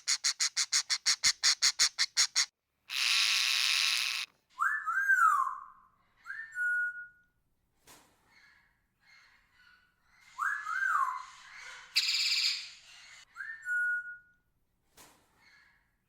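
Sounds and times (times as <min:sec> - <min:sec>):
parrot screeching: 0:00.0 - 0:04.3.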